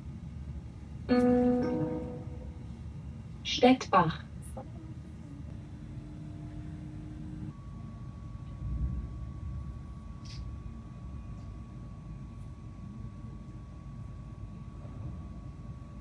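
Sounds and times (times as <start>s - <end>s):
faint steady whine: 0.0s - 16.0s
train rumbling inside carriage: 3.4s - 16.0s.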